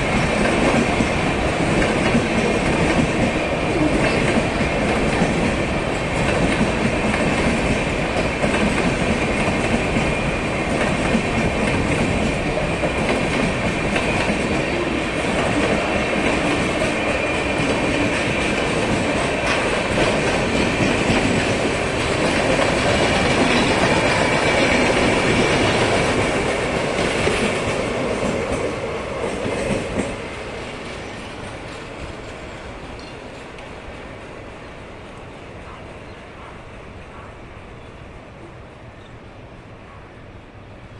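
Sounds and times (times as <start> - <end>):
train wheels rumbling on track: 0.0 - 40.9.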